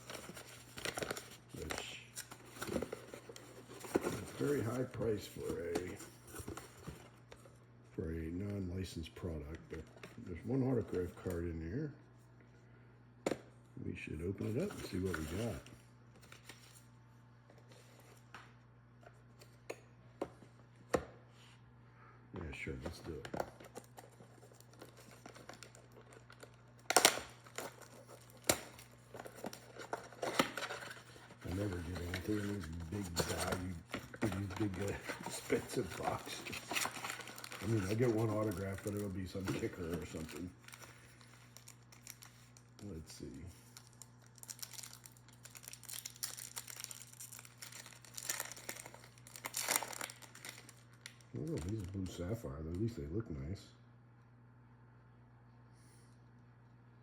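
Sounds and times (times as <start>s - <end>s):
packaging crackling: 23.1s - 42.9s, 43.6s - 52.2s
packaging ripping: 23.7s - 42.8s, 43.6s - 52.0s
foil wrapper tearing and crinkling: 23.8s - 43.0s, 43.6s - 52.2s.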